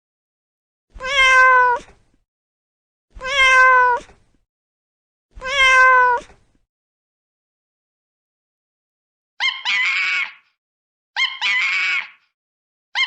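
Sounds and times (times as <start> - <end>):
cat meowing: 1.0 - 2.0, 3.2 - 4.2, 5.4 - 6.4.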